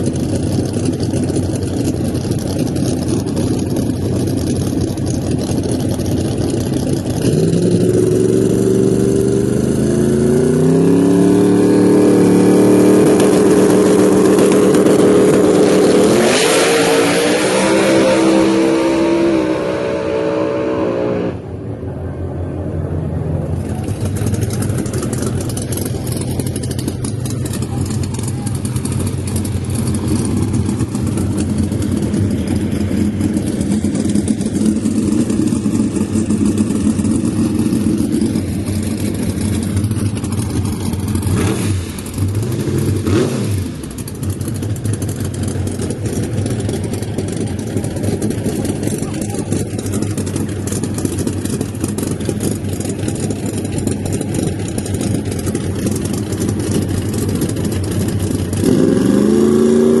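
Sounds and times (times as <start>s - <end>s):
race car engines running: 0.0s - 60.0s
engine revving sharply: 7.3s - 21.6s, 41.2s - 43.8s, 58.6s - 60.0s.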